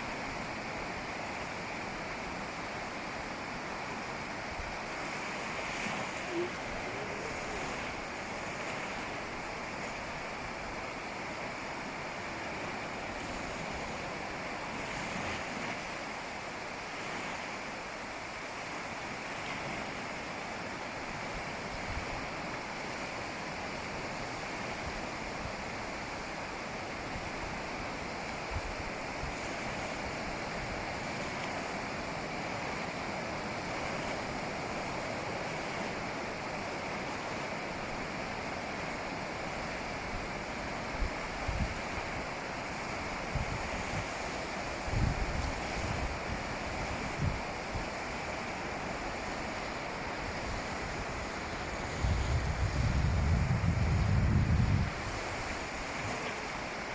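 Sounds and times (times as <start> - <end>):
ocean waves breaking on beach: 0.0 - 56.9
wind noise on microphone: 21.0 - 22.5, 23.6 - 35.8, 39.1 - 56.9.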